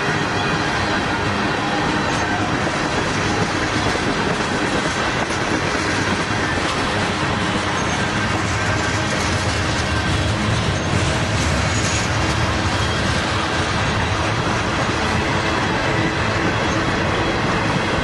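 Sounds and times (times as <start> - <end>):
freight train wheels on rail: 0.0 - 18.0.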